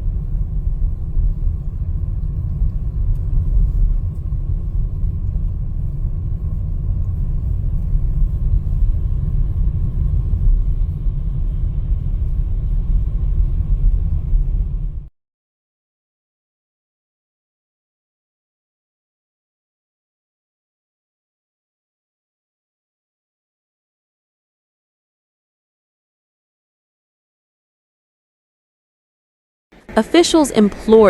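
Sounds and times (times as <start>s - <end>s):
low bass rumble: 0.0s - 15.1s.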